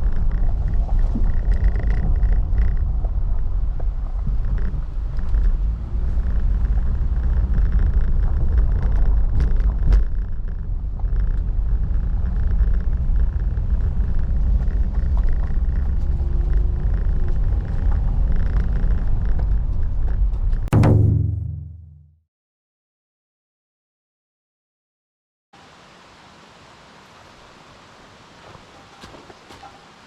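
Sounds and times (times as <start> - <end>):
car engine and road rumble: 0.0 - 21.9.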